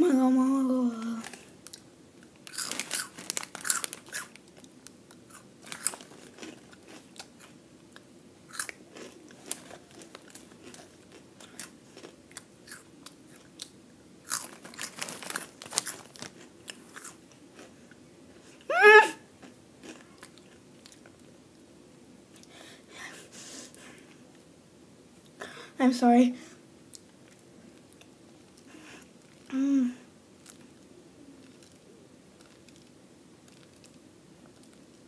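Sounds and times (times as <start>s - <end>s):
crunchy snack being chewed: 2.5s - 17.8s, 19.4s - 21.2s, 31.4s - 35.0s
high-pitched vocal squeal: 18.7s - 19.2s.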